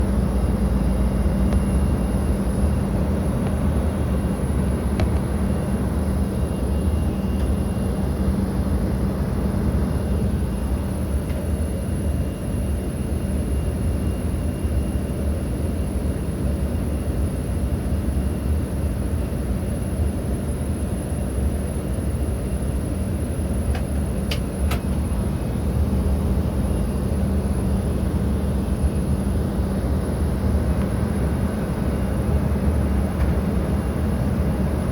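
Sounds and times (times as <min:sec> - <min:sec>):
jet aircraft rumble: 0:00.0 - 0:34.9.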